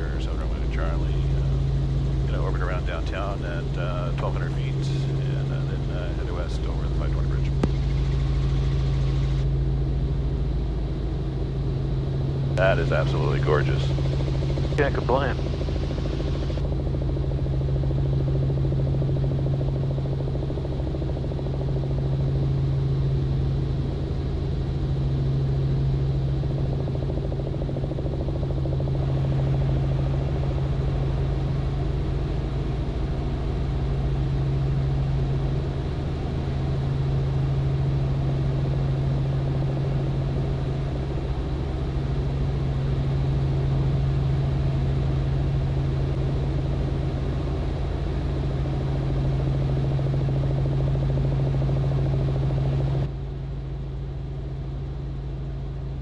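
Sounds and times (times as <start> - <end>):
helicopter droning in flight: 0.0 - 56.0.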